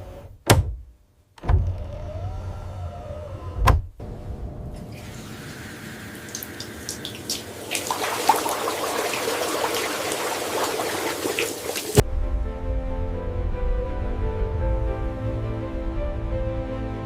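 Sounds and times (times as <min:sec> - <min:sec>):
water rushing and splashing: 0:04.8 - 0:12.0
music: 0:12.0 - 0:17.0.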